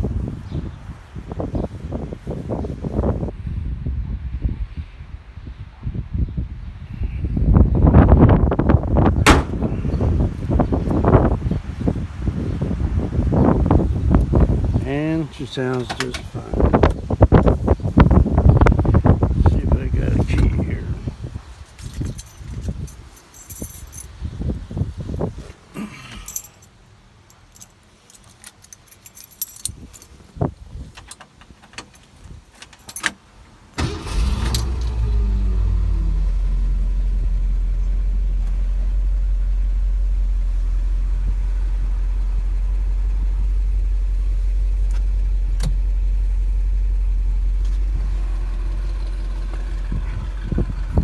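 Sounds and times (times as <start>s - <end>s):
car engine starting and idling: 8.4s - 11.9s, 33.7s - 51.0s
keys jingling: 21.6s - 24.2s, 26.1s - 33.2s.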